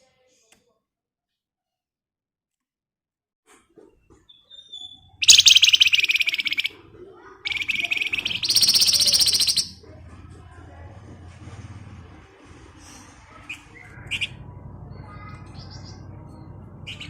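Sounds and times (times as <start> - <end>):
songbird rapid rattling trills: 4.8 - 6.7, 7.4 - 9.8.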